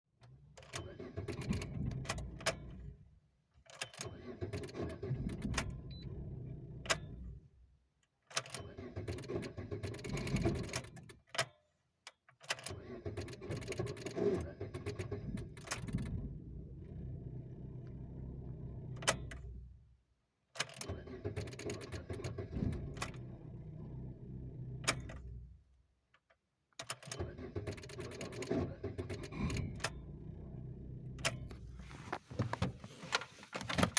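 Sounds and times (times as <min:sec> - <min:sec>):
car engine starting and running: 0:13.0 - 0:19.8, 0:20.8 - 0:25.6, 0:27.2 - 0:33.9.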